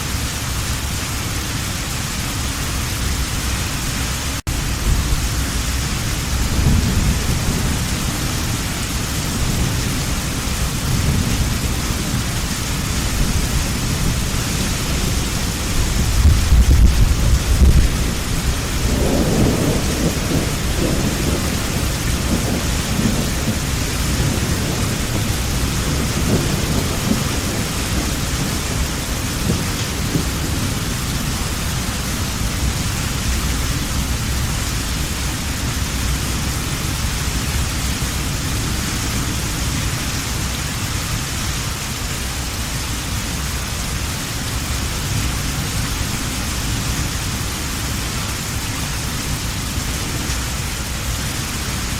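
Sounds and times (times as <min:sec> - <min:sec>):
heavy rain: 0:00.0 - 0:51.9
thunder rumbling: 0:04.5 - 0:41.2.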